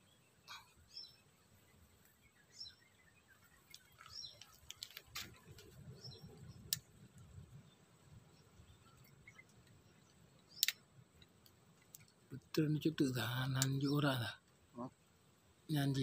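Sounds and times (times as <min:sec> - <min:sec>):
faint bird chirps: 0:00.0 - 0:10.9
sharp clicks: 0:10.4 - 0:12.6, 0:13.6 - 0:13.8.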